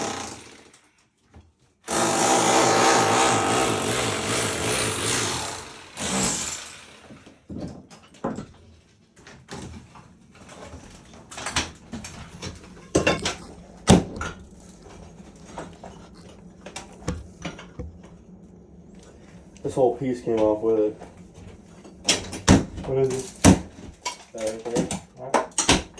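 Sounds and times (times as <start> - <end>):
power tool running: 0.0 - 0.8, 1.9 - 7.2
knocks and clatter of demolition: 0.0 - 18.2, 21.8 - 25.9.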